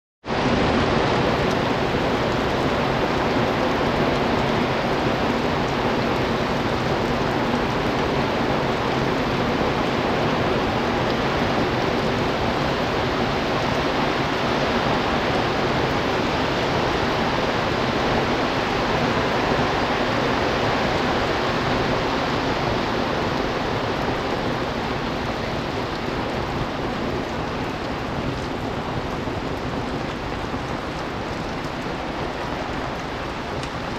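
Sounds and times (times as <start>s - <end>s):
heavy rain falling: 0.2s - 33.9s.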